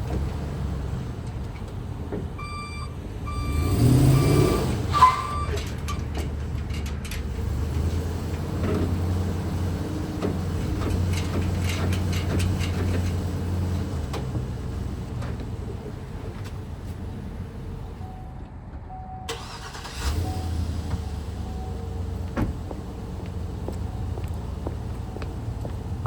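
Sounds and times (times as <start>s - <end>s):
reversing beeps: 2.4s - 5.6s, 18.0s - 19.4s.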